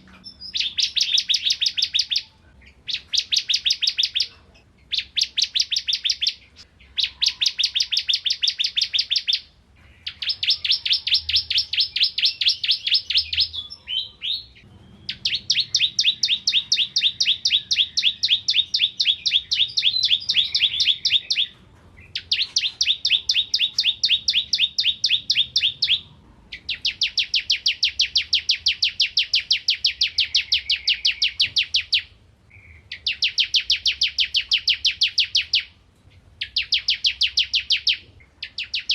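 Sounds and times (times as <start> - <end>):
bird singing high chirps: 0.0 - 38.9.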